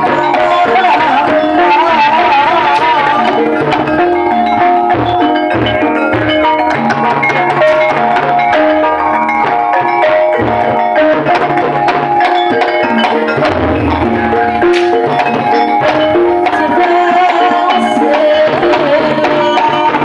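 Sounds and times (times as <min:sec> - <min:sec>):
hand drums beating fast: 0:00.0 - 0:20.0
struck mallet instruments ringing: 0:00.0 - 0:20.0.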